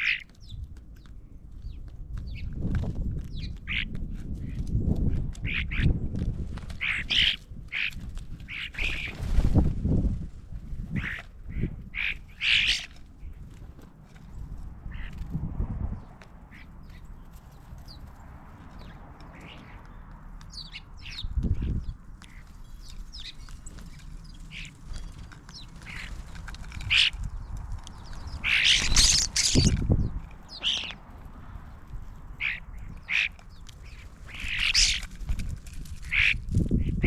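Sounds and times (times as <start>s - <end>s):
bird calls: 0.0s - 2.5s, 3.3s - 4.6s, 6.8s - 9.2s, 10.9s - 13.4s, 18.7s - 35.1s, 36.0s - 37.0s
ducks quacking: 32.4s - 33.4s, 36.0s - 36.4s.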